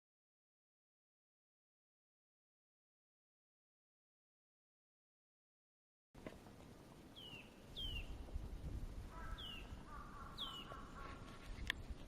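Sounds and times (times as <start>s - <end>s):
low rumble of wind: 6.2s - 12.0s
high downward-slurred bird calls: 7.1s - 8.2s, 9.1s - 11.3s
lower wavering bird call: 9.1s - 11.2s.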